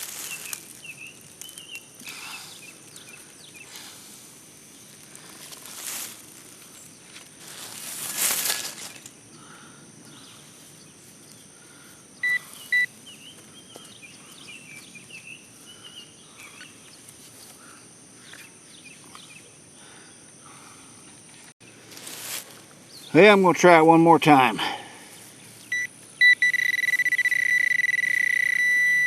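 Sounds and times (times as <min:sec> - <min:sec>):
high insect drone: 0:00.0 - 0:29.0
bird singing: 0:00.2 - 0:03.7, 0:12.2 - 0:17.5
metal detector short beeps: 0:12.2 - 0:12.9, 0:25.7 - 0:29.0.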